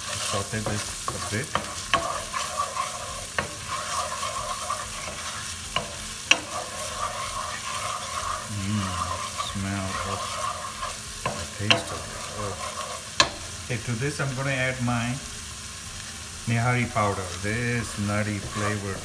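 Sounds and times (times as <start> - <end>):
wooden spatula scraping a pan: 0.0 - 13.5, 16.8 - 19.0
food sizzling in a frying pan: 0.0 - 19.0
spatula clacking against pan: 0.6 - 8.4.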